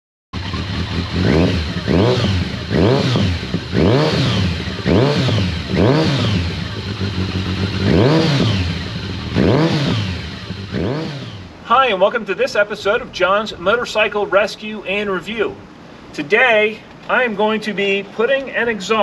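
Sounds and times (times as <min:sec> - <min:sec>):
motorcycle engine revving: 0:00.4 - 0:11.6.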